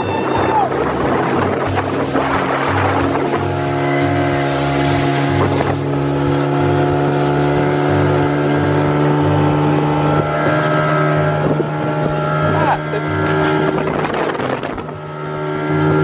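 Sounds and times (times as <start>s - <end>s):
speedboat engine running: 0.0s - 16.0s.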